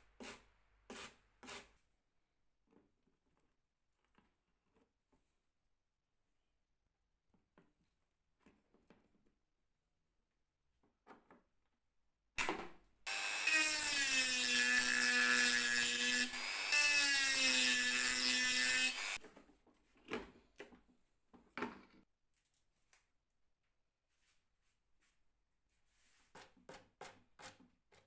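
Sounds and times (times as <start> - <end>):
power drill whining: 15.8 - 19.2.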